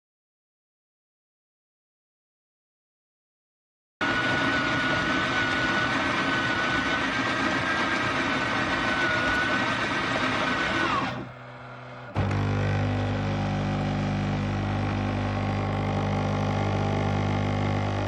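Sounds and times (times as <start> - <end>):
power tool high whine: 4.0 - 18.0.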